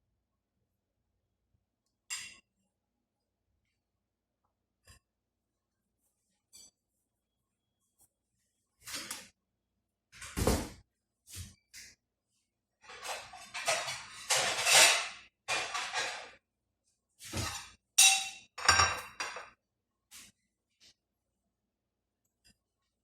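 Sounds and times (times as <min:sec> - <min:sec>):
cookware and utensils clattering: 0:12.8 - 0:16.4, 0:17.2 - 0:19.6.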